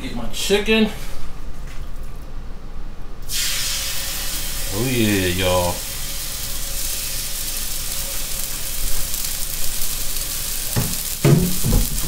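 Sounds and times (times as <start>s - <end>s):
chicken sizzling on a griddle: 3.3s - 12.0s.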